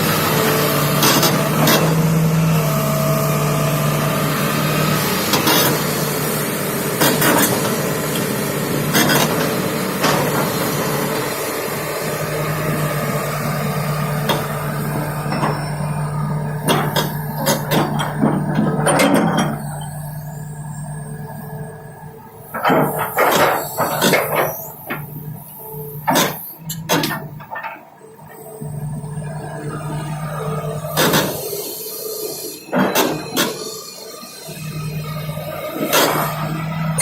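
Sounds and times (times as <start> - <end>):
excavator diesel engine humming: 0.0 - 37.0.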